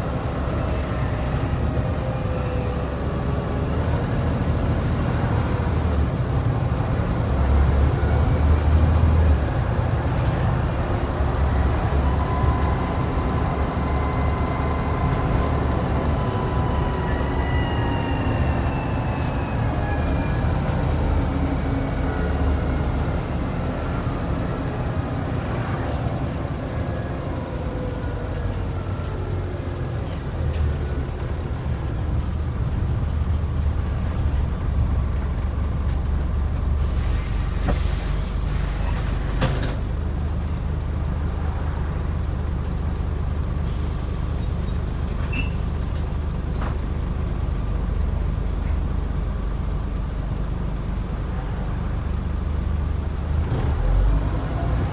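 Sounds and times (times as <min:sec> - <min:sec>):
bus diesel engine rumble: 0:00.0 - 0:54.9
air brakes hissing: 0:36.8 - 0:40.1, 0:43.6 - 0:46.8.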